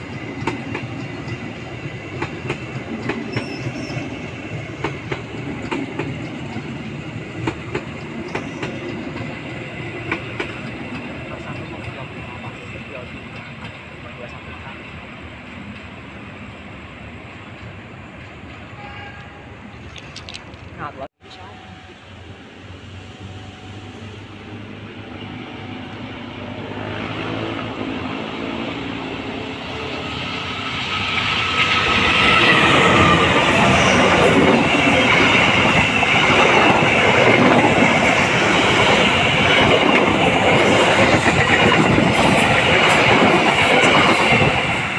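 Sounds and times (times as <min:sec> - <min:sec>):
train wheels clicking on rails: 0:00.0 - 0:14.7, 0:28.8 - 0:44.9
train rumble: 0:00.0 - 0:44.9.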